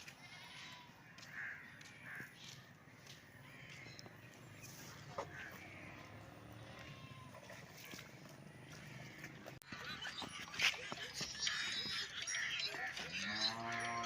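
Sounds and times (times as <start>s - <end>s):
faint crow cawing: 0.6s - 4.1s, 5.1s - 7.0s.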